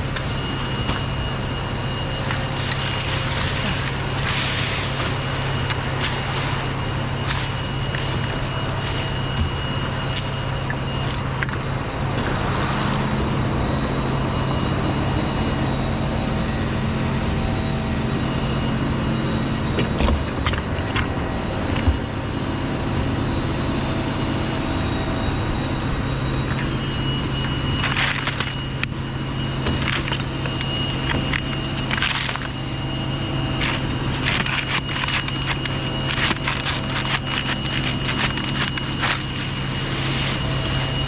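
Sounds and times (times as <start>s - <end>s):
engine running steadily: 0.0s - 41.0s
short cracks and rustling: 33.6s - 39.6s.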